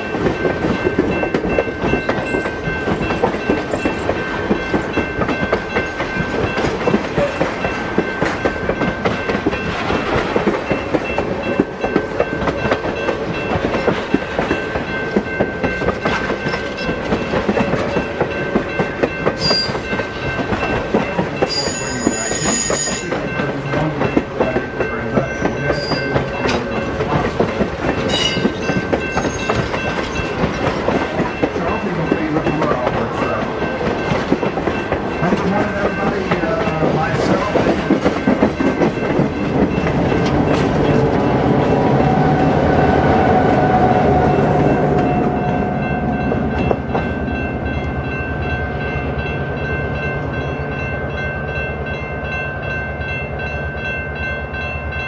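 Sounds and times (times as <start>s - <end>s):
wheel squeals: 21.5s - 23.2s, 28.1s - 30.3s.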